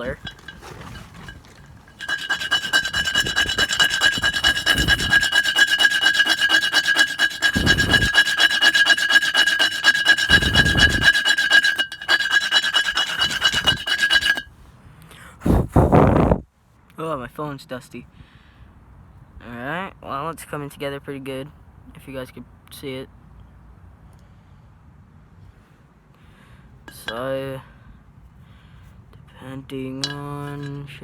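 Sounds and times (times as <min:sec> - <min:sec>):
file rasping on wood: 0:01.9 - 0:14.5.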